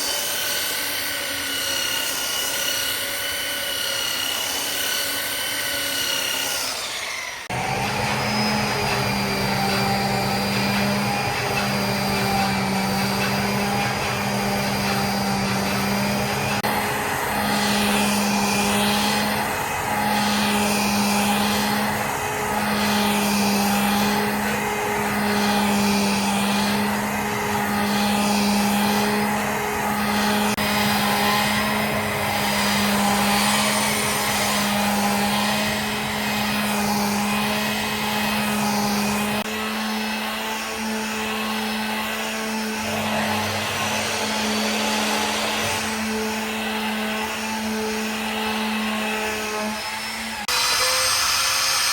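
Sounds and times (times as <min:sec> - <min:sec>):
workshop machine motor hum: 0:07.4 - 0:39.6.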